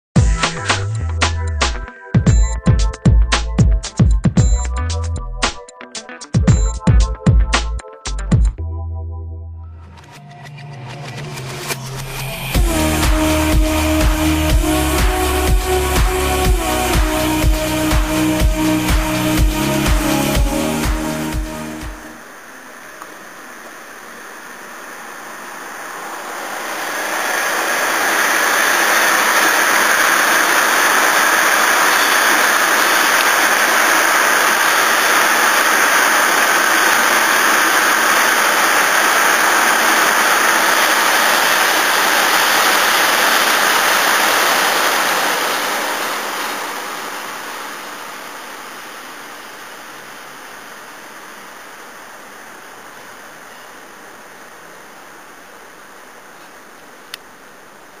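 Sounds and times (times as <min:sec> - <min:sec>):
train passing: 0:20.4 - 0:49.4.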